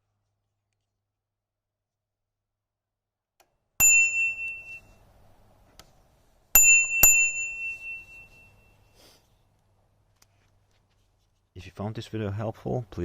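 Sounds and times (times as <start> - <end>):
bicycle bell ringing: 3.8 - 5.0, 6.6 - 8.9.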